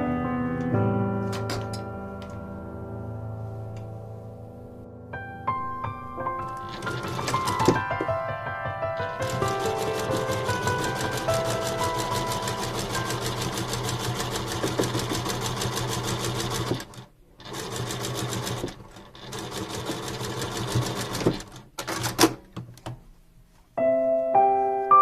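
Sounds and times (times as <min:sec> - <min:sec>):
sewing machine stitching: 0:06.5 - 0:08.0, 0:09.0 - 0:22.4.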